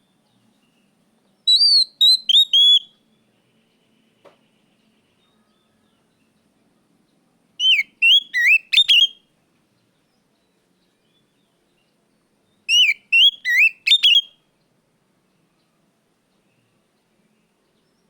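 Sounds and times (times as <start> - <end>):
songbird whistling song: 0.1 - 6.5, 7.6 - 14.6.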